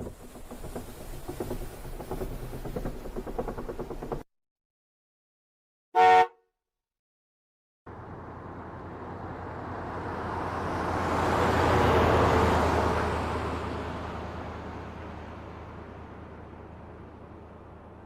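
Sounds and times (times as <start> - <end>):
car horn honk: 6.0 - 6.5
vehicle driving past: 7.9 - 18.0.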